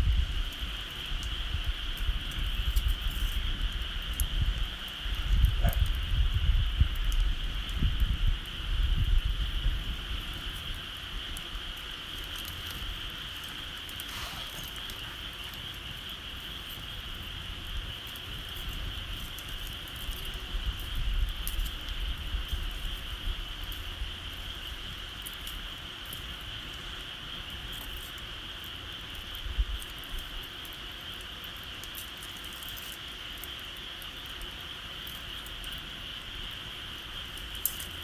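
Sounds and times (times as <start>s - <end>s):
wind rumble on microphone: 0.0s - 25.8s, 29.3s - 30.4s
bonfire crackling and popping: 0.0s - 38.0s.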